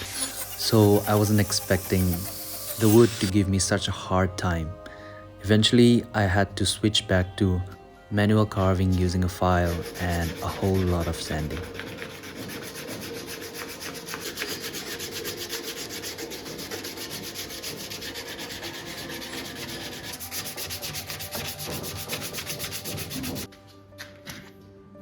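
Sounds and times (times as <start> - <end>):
hand sanding wood: 0.0 - 3.3, 8.8 - 23.5.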